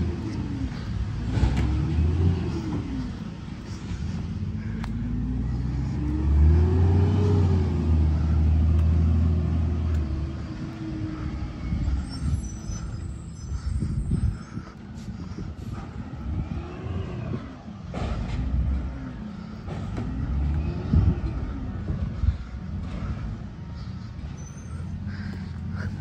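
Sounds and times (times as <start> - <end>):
garbage truck diesel engine: 0.0 - 26.0
high-pitched squeal: 11.2 - 14.6.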